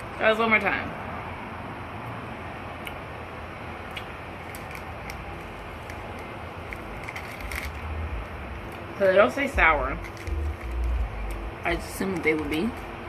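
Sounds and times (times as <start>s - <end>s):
faint handling clicks and crackles: 4.0s - 7.9s, 10.0s - 12.9s
low rumble: 9.6s - 12.0s.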